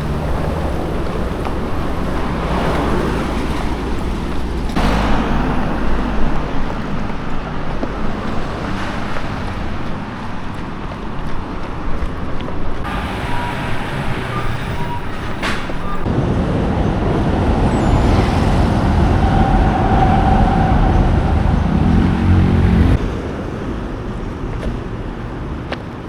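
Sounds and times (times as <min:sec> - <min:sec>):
heavy vehicle rumbling past: 0:00.0 - 0:11.6, 0:12.7 - 0:25.6
road traffic: 0:00.0 - 0:26.0
rising engine note: 0:15.8 - 0:23.1.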